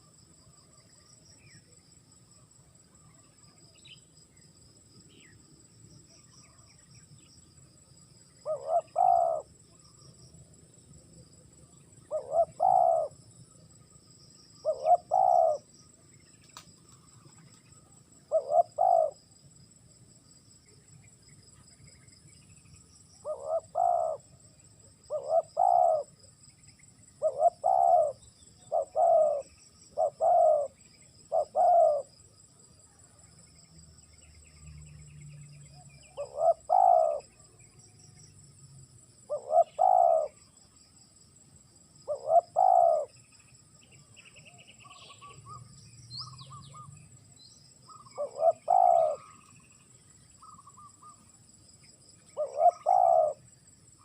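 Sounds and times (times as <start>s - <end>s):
high insect drone: 0.0s - 54.0s
dove cooing: 8.4s - 9.6s, 12.0s - 13.2s, 14.6s - 15.7s, 18.2s - 19.3s, 23.2s - 24.4s, 25.1s - 26.2s, 27.2s - 32.1s, 36.1s - 37.5s, 39.2s - 40.4s, 42.0s - 43.2s, 44.4s - 47.0s, 47.9s - 49.8s, 52.2s - 53.5s.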